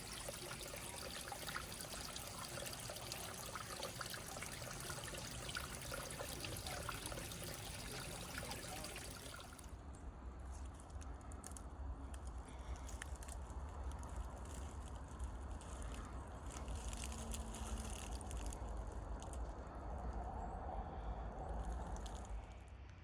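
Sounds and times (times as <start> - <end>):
creek water trickling over rocks: 0.0 - 9.7.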